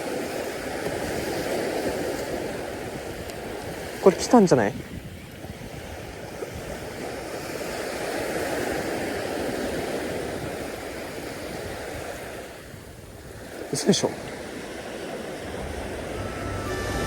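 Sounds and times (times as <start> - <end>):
sea surf washing onto beach: 0.0 - 17.0.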